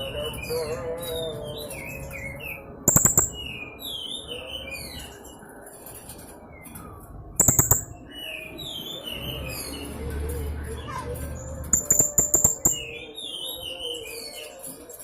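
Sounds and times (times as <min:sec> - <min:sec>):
loud short rattling bursts: 0:02.9 - 0:03.4
parrot chirping: 0:02.9 - 0:03.4, 0:07.4 - 0:08.0.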